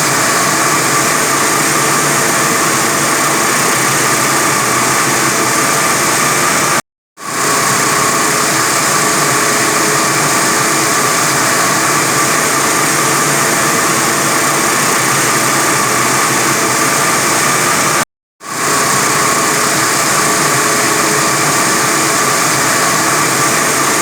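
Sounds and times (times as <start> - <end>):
wire saw cutting concrete: 0.0 - 24.0.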